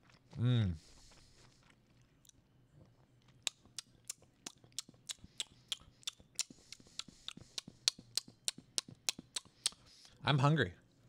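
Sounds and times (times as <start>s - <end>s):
mouth clicks chewing: 3.3s - 10.2s.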